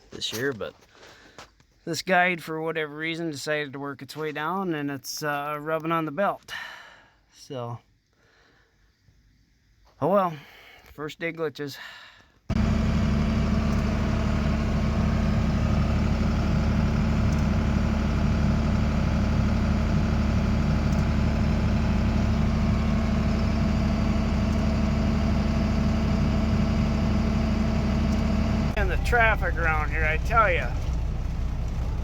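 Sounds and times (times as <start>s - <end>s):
combine harvester engine drone: 12.5s - 32.0s.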